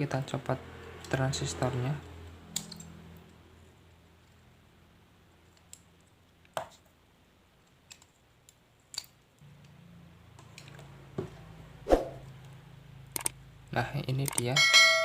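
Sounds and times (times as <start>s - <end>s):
tools clicking on circuit board: 13.2s - 13.4s, 14.2s - 14.5s.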